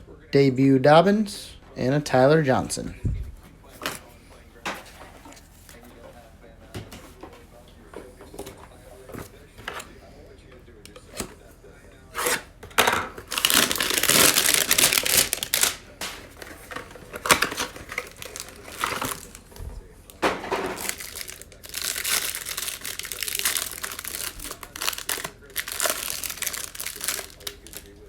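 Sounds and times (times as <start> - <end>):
plastic packaging crinkling and tearing: 13.2 - 19.6, 20.2 - 28.0.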